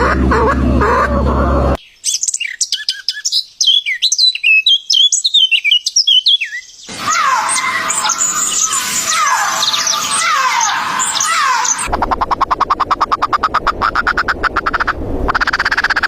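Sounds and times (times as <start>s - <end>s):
chicken call: 0.0s - 1.8s, 6.9s - 11.9s
songbird chirping: 1.8s - 7.0s
chorus of birds calling: 6.2s - 16.0s.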